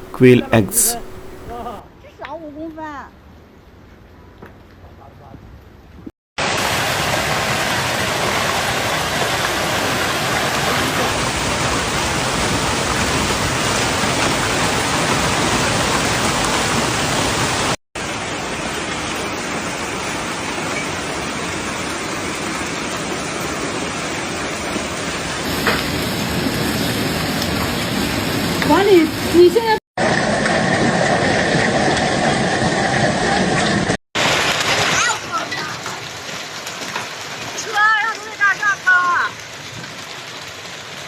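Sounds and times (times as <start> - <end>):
heavy hail and rain: 6.4 - 29.3, 34.2 - 41.0.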